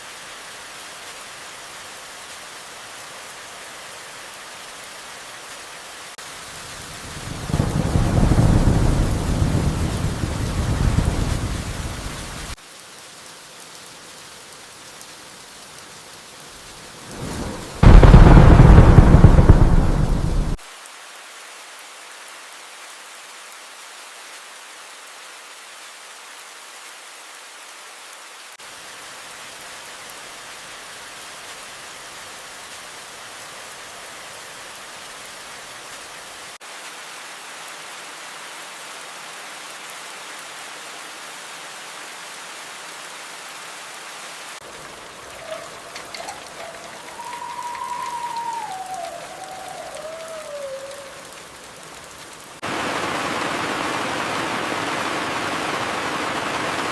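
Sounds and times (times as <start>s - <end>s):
steady rain falling: 0.0s - 56.9s
thunderclap: 7.2s - 12.6s, 17.1s - 20.6s, 45.4s - 51.3s.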